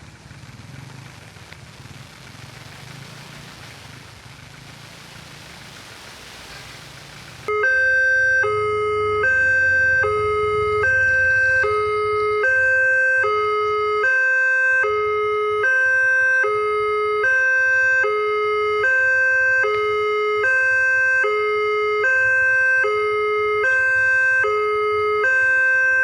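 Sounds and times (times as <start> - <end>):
road traffic rushing: 0.0 - 26.0
level crossing two-tone alarm: 7.5 - 26.0.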